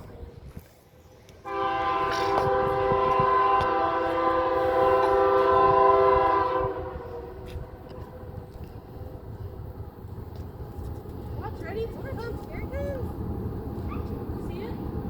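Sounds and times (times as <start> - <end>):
locomotive horn blast: 1.4 - 8.4.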